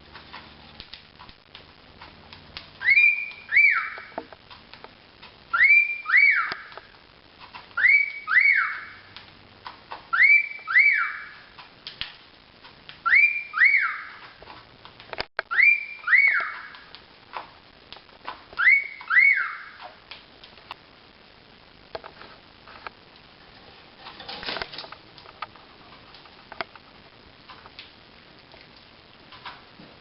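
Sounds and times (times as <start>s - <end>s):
cockatiel wolf-whistling: 2.8s - 4.2s.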